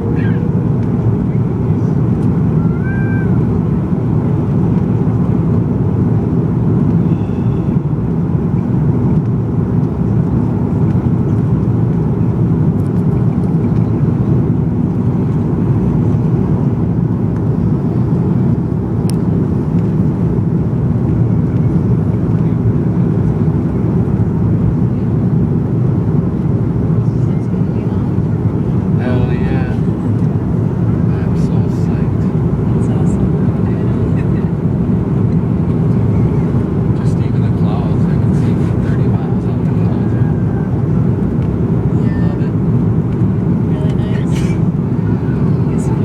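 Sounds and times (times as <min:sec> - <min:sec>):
airplane cabin rumble: 0:00.0 - 0:46.0.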